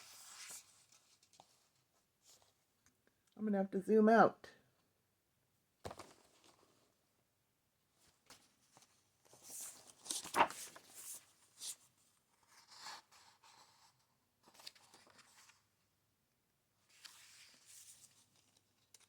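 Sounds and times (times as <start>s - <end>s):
book pages rustling: 0.0s - 2.6s, 5.8s - 6.8s, 8.0s - 15.7s, 16.9s - 19.0s.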